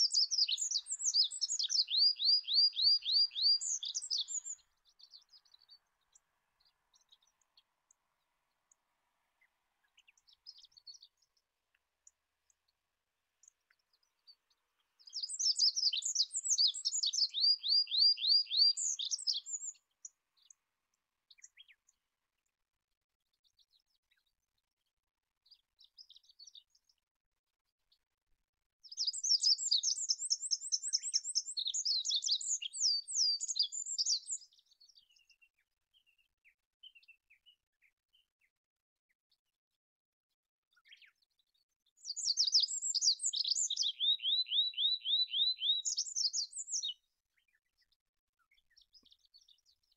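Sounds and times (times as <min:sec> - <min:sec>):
bird trilled song phrases: 0:00.0 - 0:07.4, 0:15.0 - 0:19.8, 0:28.8 - 0:38.3, 0:40.7 - 0:49.9.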